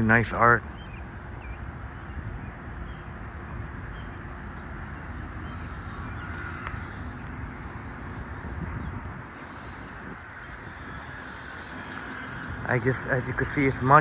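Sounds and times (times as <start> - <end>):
distant traffic rumble: 0.0 - 14.0
faint bird chirps: 3.9 - 13.6.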